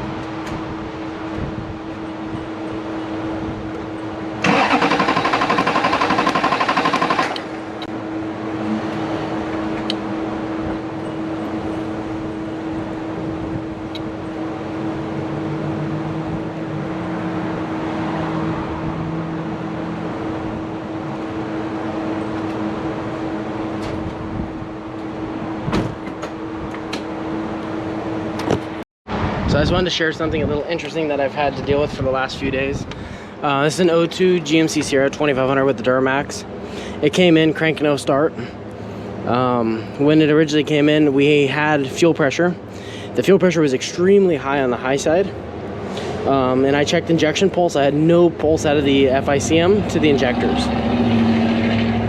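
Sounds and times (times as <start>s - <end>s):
starter cranking diesel engine: 4.4s - 7.6s.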